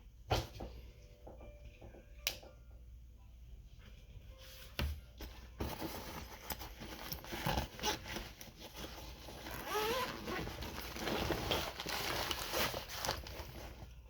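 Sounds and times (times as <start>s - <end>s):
bag rustling: 5.2s - 14.0s
bag zipper rasping: 6.5s - 13.6s.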